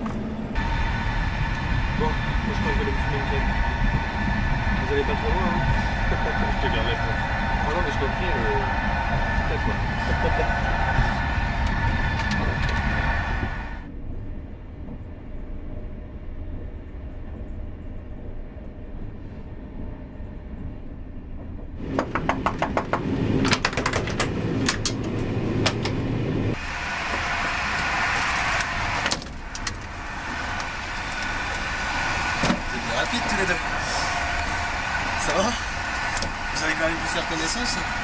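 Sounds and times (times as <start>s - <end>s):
train rumble inside carriage: 0.0s - 38.0s
sharp clicks and rattles: 21.4s - 26.0s, 28.2s - 31.6s.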